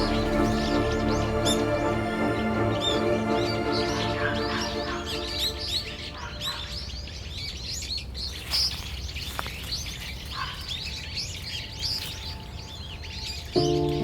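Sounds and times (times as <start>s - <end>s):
steady low rumble: 0.0s - 4.2s
small birds chirping: 0.0s - 14.0s.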